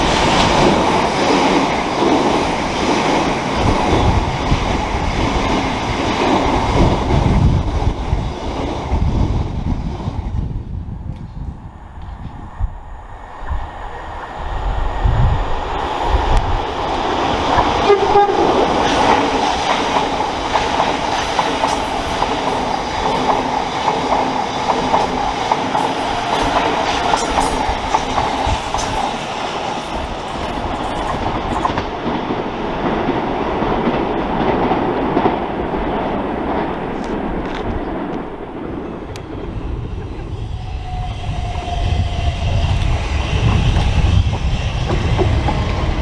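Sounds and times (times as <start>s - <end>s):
train rumbling on rails: 0.0s - 46.0s
wheels clacking over rail joints: 16.0s - 39.4s
train horn: 17.6s - 19.3s.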